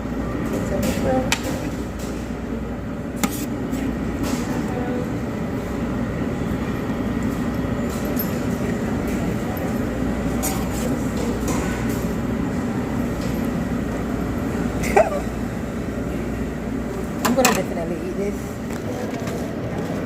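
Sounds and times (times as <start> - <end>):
utensils clinking against dishes: 7.8 - 12.2.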